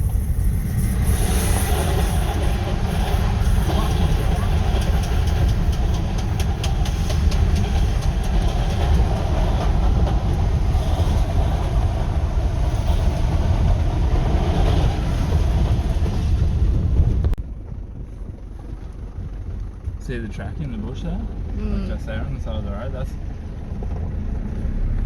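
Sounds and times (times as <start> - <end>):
pit bike engine rumbling: 0.0 - 25.0
rattling and clicks: 2.0 - 11.4.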